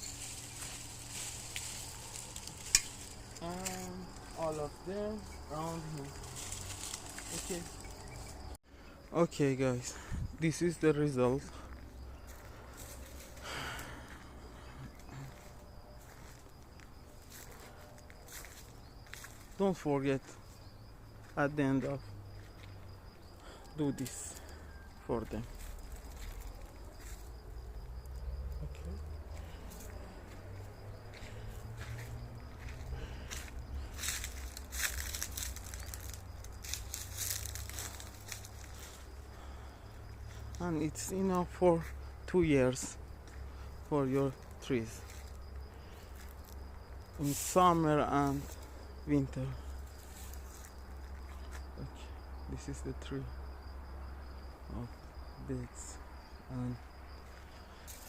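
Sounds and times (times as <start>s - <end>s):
rustling rush: 0.0s - 3.4s
dry leaves rustling and crackling: 0.0s - 8.6s, 15.1s - 19.6s, 25.4s - 39.7s, 44.1s - 49.0s, 49.6s - 51.4s, 57.3s - 58.0s
faint insects chirping: 0.0s - 58.0s
wind rumble on microphone: 10.0s - 10.4s.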